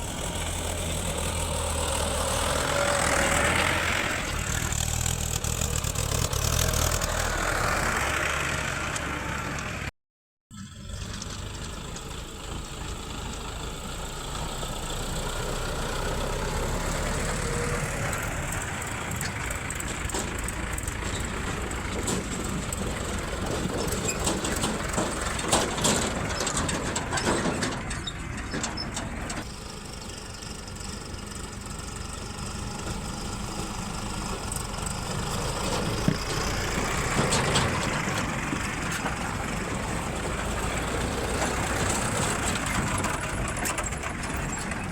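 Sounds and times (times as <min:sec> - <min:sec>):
diesel engines running: 0:00.0 - 0:09.9, 0:10.6 - 0:44.9
knocks and clatters: 0:18.9 - 0:29.5, 0:35.2 - 0:44.9.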